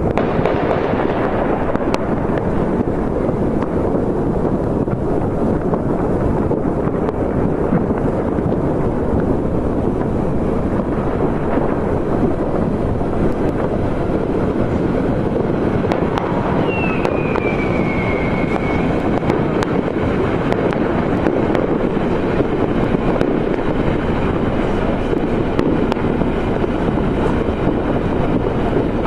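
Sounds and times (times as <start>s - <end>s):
fireworks and firecrackers banging: 0.0s - 29.0s
sharp pops: 0.0s - 29.0s
whistling firework falling in pitch: 6.8s - 29.0s.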